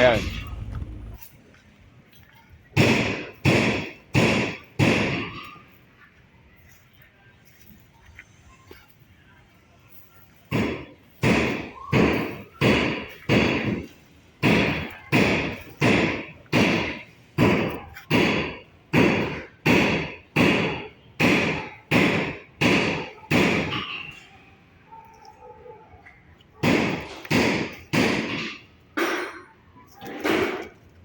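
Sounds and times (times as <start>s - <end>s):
heavy thuds: 0.0s - 1.2s.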